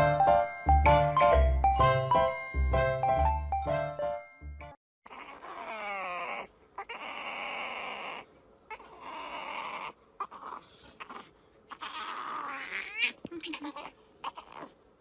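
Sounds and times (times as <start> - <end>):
dog whining: 5.0 - 14.8.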